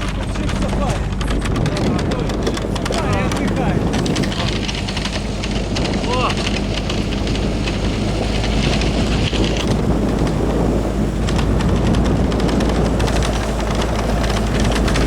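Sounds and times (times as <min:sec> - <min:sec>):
car engine: 0:00.0 - 0:15.0
road noise: 0:00.0 - 0:15.0
wind: 0:00.0 - 0:15.0.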